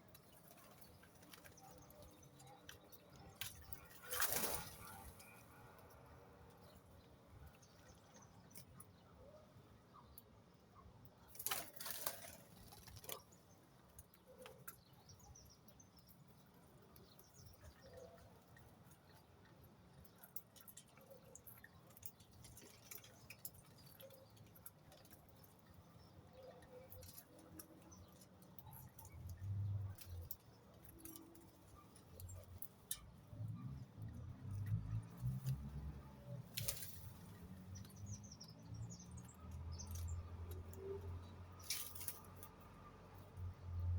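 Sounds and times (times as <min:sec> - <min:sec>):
bird wings fluttering: 0:03.4 - 0:05.4, 0:11.3 - 0:13.3, 0:36.5 - 0:37.5.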